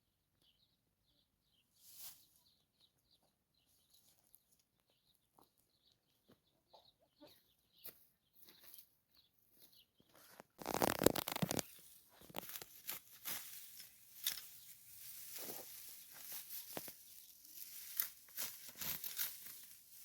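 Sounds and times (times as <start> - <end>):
faint high bird chirps: 0.0 - 12.4
rustling: 10.2 - 20.0.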